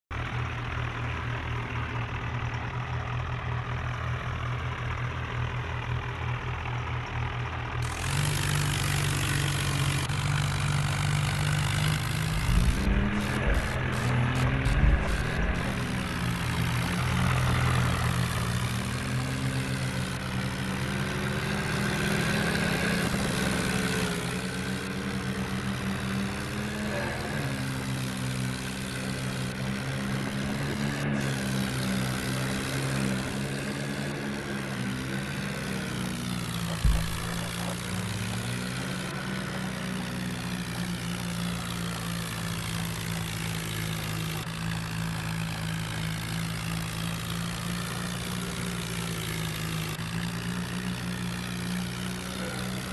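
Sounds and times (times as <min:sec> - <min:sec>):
tractor diesel engine running: 0:00.1 - 0:52.9
thump: 0:36.8 - 0:37.6.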